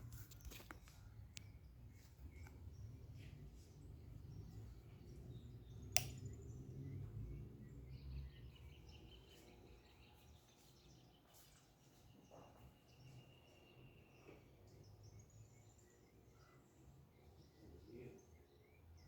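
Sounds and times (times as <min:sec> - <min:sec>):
sharp click: 0:06.0 - 0:06.2.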